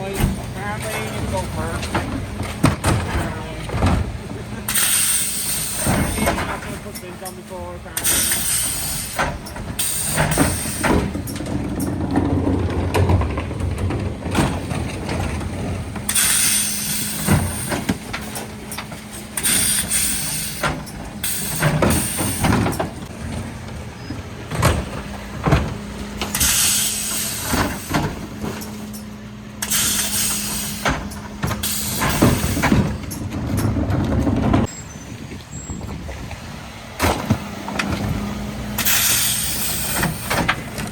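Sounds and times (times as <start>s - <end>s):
wheelie bins knocking and clattering: 0.0s - 34.9s, 36.9s - 40.9s
hydraulic hum: 0.0s - 40.9s
hydraulic hissing bursts: 4.7s - 6.4s, 8.0s - 11.2s, 16.1s - 18.4s, 19.2s - 22.8s, 26.3s - 28.2s, 29.6s - 33.1s, 38.7s - 40.5s.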